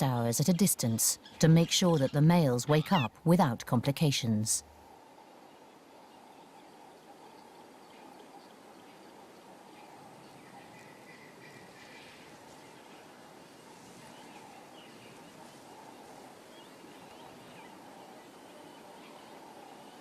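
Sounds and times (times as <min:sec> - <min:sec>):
steady hiss: 0:04.7 - 0:20.0.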